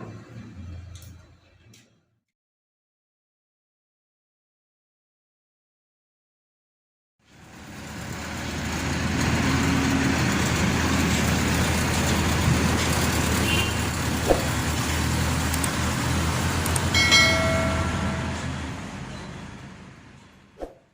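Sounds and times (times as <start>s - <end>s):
combine harvester diesel engine: 0.0s - 1.8s, 7.2s - 20.6s.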